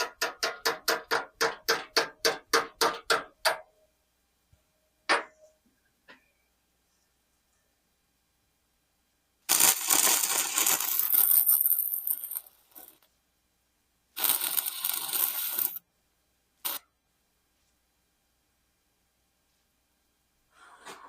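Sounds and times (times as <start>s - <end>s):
welder arc crackling: 9.5s - 13.1s, 14.2s - 15.8s, 16.6s - 16.8s.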